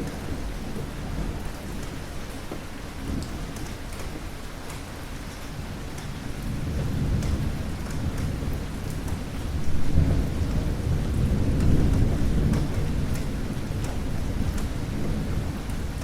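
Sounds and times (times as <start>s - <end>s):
steady rain: 0.0s - 16.0s
rolling thunder: 5.6s - 16.0s.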